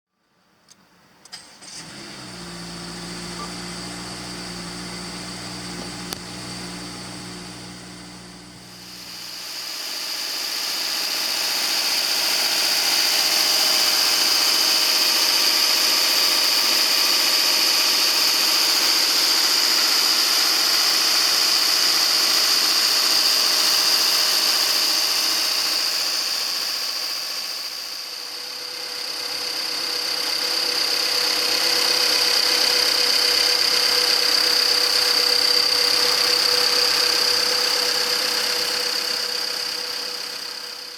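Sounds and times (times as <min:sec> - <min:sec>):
car engine running: 0:01.7 - 0:14.6, 0:27.9 - 0:40.9
high-pitched whine: 0:08.5 - 0:40.9.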